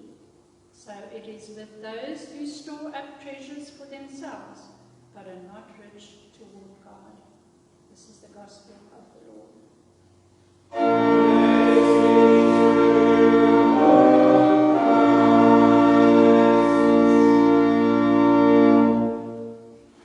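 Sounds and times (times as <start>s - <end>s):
church organ chords: 10.7s - 20.0s.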